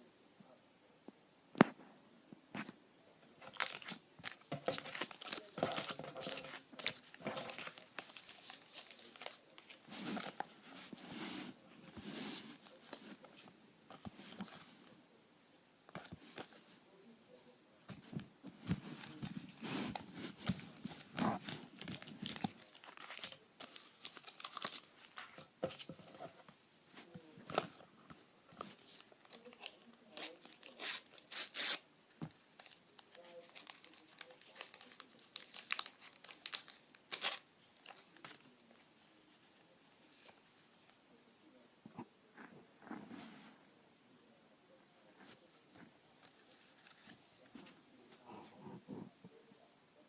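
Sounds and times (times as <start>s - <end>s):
sticker packets tearing and crinkling: 3.4s - 10.4s, 29.3s - 31.8s, 32.6s - 38.0s.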